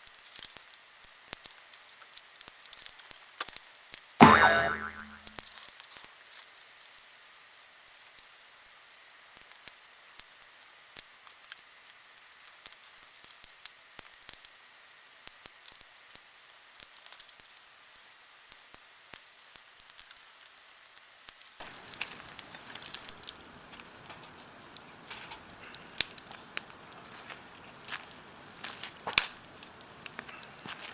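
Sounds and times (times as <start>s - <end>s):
wood fire crackling and popping: 21.7s - 30.9s.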